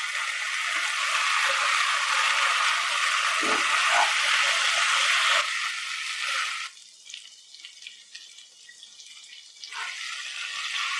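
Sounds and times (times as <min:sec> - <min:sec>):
chicken sizzling in pan: 0:00.0 - 0:07.1, 0:09.6 - 0:10.9.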